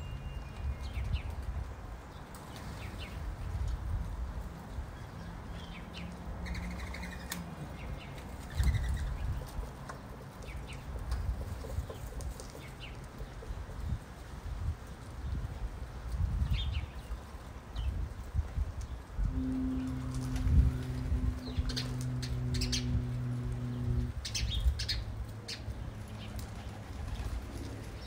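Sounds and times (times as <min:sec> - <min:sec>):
constant low rumble: 0:00.6 - 0:28.0
small birds chirping: 0:04.7 - 0:14.0, 0:21.4 - 0:27.3.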